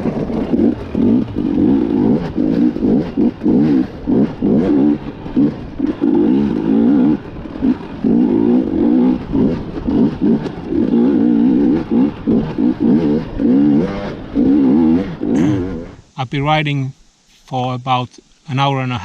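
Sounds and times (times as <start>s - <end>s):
dirt bike engine revving: 0.0s - 16.2s.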